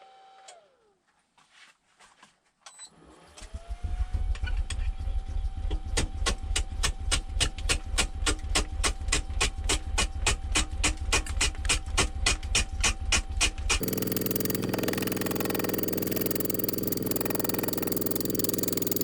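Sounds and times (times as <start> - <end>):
gouge striking spinning log: 13.8 - 19.0
wood lathe whine and rumble: 13.8 - 19.0.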